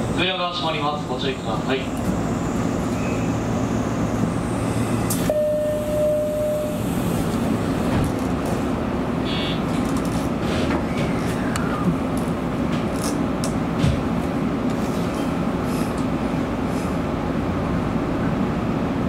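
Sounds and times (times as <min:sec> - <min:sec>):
train cab interior noise: 0:00.0 - 0:19.0
steady beep tone: 0:05.3 - 0:06.8.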